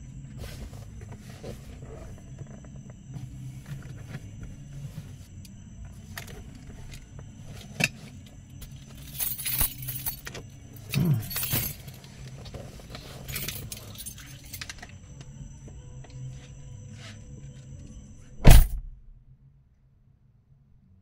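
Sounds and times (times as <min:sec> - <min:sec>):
low steady hum: 0:00.0 - 0:21.0
keys jangling: 0:08.6 - 0:14.9.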